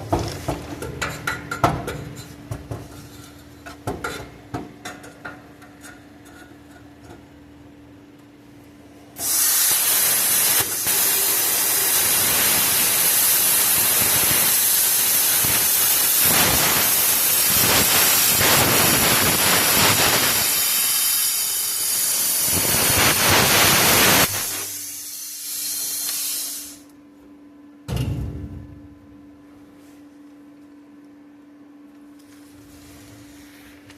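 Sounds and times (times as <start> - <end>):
plasma cutter hissing: 9.2 - 26.8
air hiss: 9.2 - 26.9.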